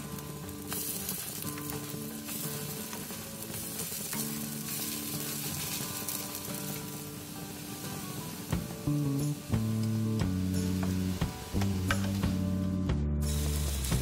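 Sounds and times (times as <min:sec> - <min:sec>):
pancakes sizzling in oil: 0:00.0 - 0:12.3, 0:13.2 - 0:14.0
spatula scraping and tapping pan: 0:00.5 - 0:07.0, 0:09.6 - 0:12.4.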